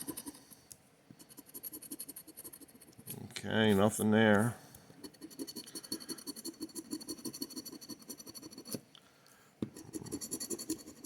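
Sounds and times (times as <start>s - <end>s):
lottery ticket being scratched: 5.0s - 8.8s, 9.8s - 11.0s.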